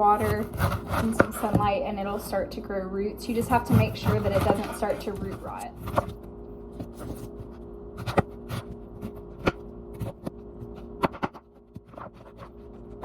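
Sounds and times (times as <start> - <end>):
knife chopping pineapple: 0.0 - 1.8, 3.4 - 6.2, 10.9 - 12.4.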